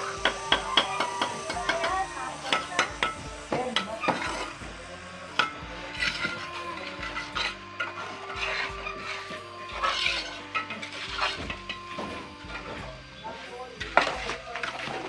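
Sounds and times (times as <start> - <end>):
metal clinks and scrapes: 5.3 - 12.8.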